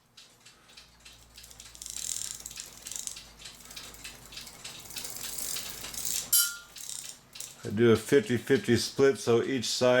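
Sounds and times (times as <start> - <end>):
ratchet clicking: 0.0 - 7.6.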